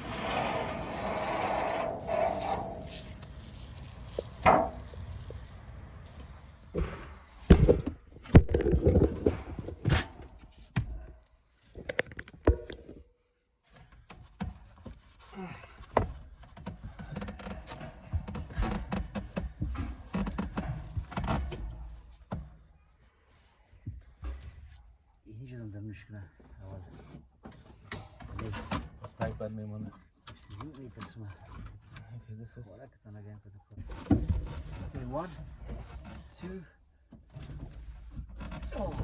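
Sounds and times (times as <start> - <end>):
tools knocking and clattering: 4.1 - 5.0.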